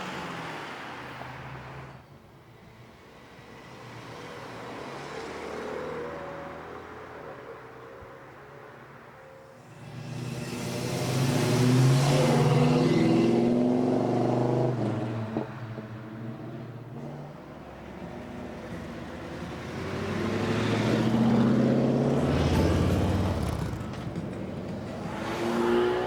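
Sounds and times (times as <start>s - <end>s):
car engine revving: 18.2s - 26.0s.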